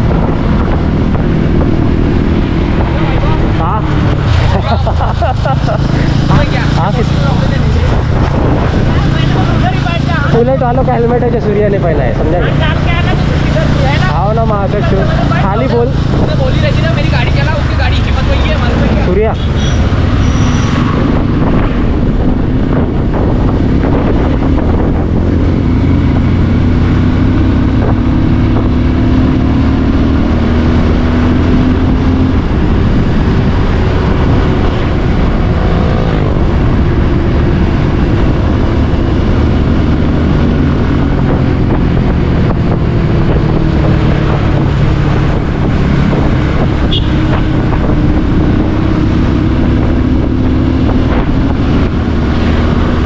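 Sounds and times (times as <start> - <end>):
wind rushing over microphone: 0.0 - 53.0
motorcycle engine running: 21.2 - 53.0.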